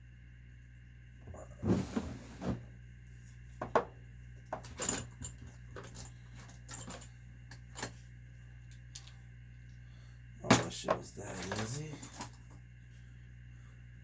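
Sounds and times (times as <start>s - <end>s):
low steady hum: 0.0s - 14.0s
light metallic clinks and knocks: 4.5s - 8.0s, 10.5s - 12.6s.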